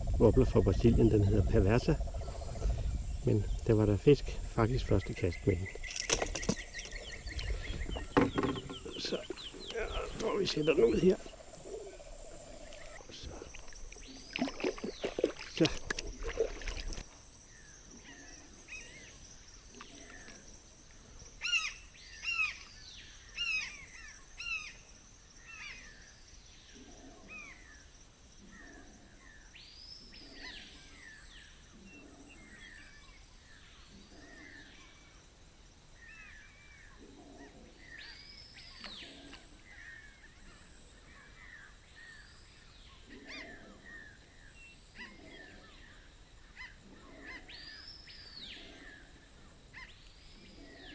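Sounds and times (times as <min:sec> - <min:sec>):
birds calling: 0:00.0 - 0:20.7, 0:36.0 - 0:50.9.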